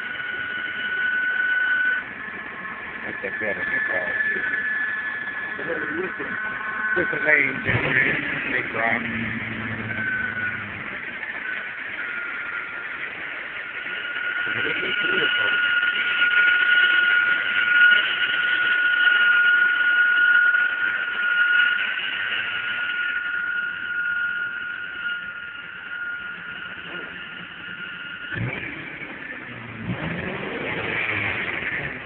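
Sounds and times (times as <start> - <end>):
car engine idling: 0.0 - 32.0
high whine: 0.0 - 32.0.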